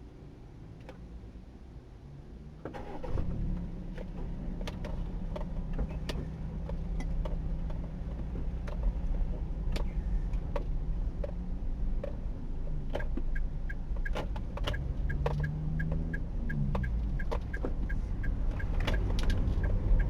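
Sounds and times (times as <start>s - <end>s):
car engine and road rumble: 0.0s - 20.0s
sharp clicks: 13.0s - 20.0s.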